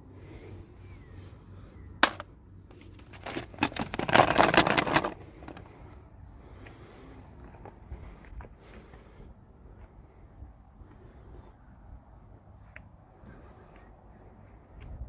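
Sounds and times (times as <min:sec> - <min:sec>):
packaging crackling and rustling: 0:02.0 - 0:05.8.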